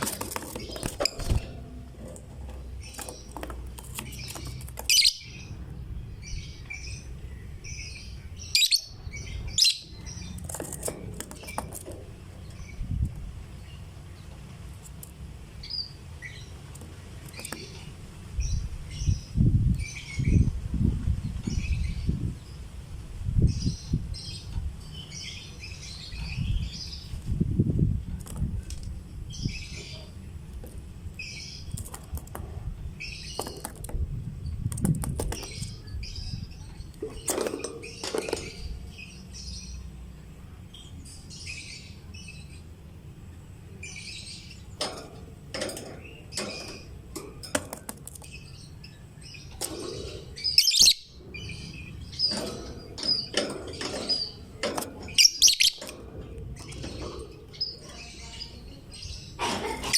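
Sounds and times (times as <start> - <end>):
lovebird chirping: 4.0 - 10.4, 48.3 - 54.4, 55.1 - 55.9.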